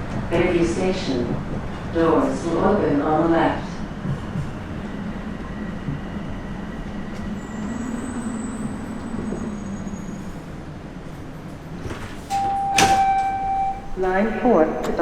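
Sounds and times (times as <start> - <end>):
subway train rumble: 0.0 - 15.0
electronic chime tone: 12.4 - 13.9.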